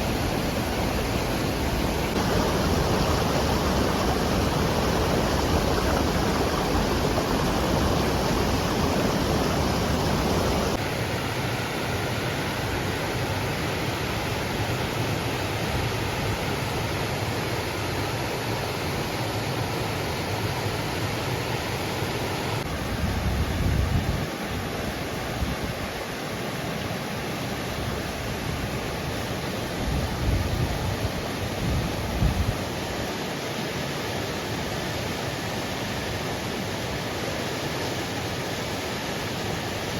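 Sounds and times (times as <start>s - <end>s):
waterfall rushing: 0.0s - 10.8s
low rumbles: 0.3s - 10.8s.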